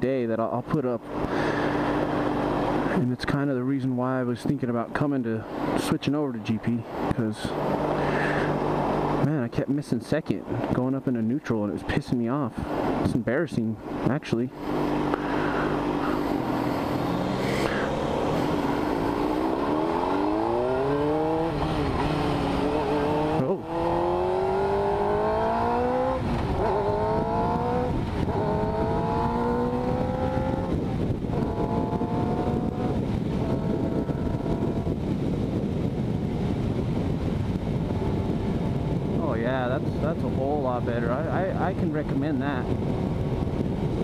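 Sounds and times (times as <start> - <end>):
wind rush on microphone: 12.5 - 44.0
motorcycle engine accelerating: 14.5 - 44.0.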